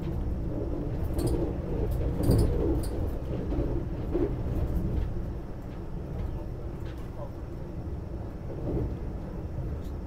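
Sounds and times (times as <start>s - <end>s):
train coach rumble: 0.0s - 10.0s.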